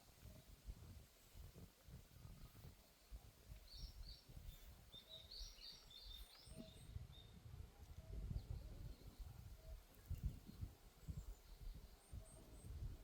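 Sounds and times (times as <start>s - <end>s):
faint birdsong: 2.3s - 13.0s
wind on microphone: 6.0s - 13.0s.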